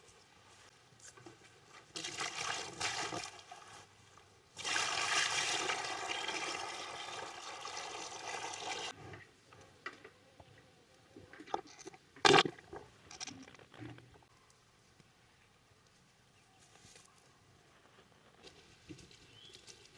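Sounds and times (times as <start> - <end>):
water pouring and splashing: 1.7 - 9.0.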